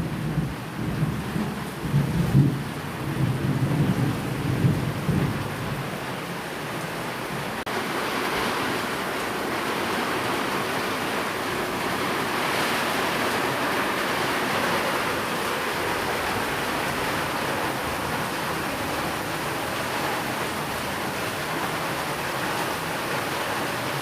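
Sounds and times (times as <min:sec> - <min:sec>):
thunder rumbling: 0:00.0 - 0:06.3, 0:07.3 - 0:21.1
rain falling: 0:00.0 - 0:24.0.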